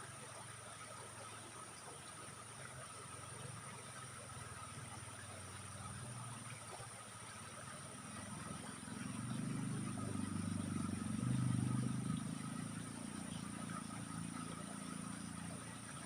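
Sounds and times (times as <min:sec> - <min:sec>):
faint high whine: 0:00.0 - 0:16.0
vehicle engine passing by: 0:07.7 - 0:16.0.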